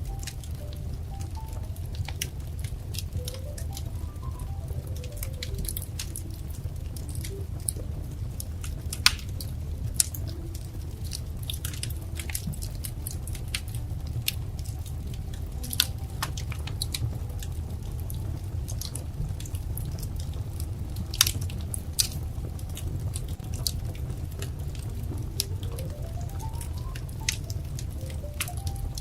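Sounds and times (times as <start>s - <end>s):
low rumble of burning: 0.0s - 29.0s
wood fire crackling and popping: 0.0s - 29.0s.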